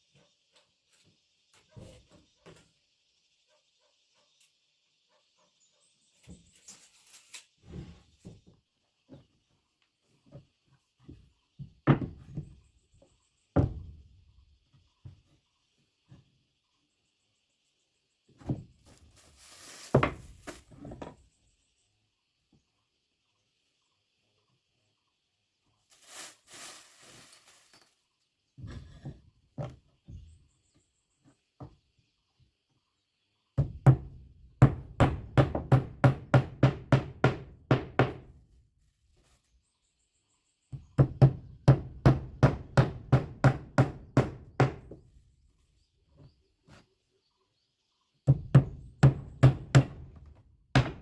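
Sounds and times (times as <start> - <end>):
hammer striking wood: 33.6 - 38.2, 41.0 - 45.0, 48.3 - 50.1, 50.7 - 51.0.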